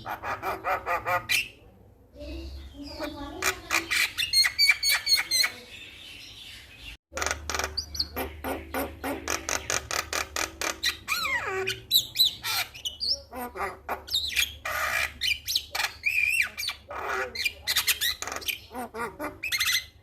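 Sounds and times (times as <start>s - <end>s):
bird singing chattering notes: 2.2s - 18.8s.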